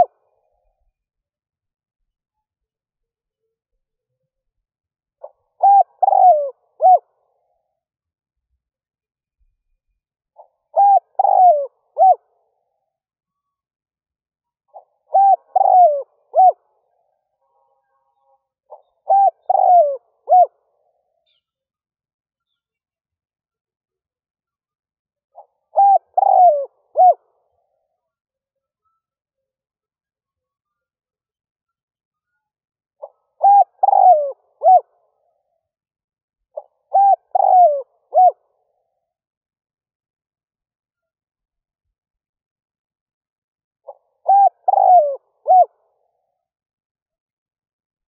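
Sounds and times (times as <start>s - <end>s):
dove cooing: 0.0s - 0.2s, 5.2s - 7.1s, 10.4s - 12.3s, 14.7s - 16.6s, 18.7s - 20.6s, 25.4s - 27.5s, 33.0s - 34.9s, 36.6s - 38.7s, 43.9s - 45.8s.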